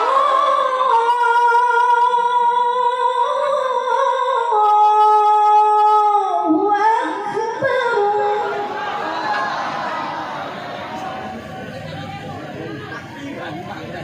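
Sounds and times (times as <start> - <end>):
woman reciting melodically: 0.0 - 9.3.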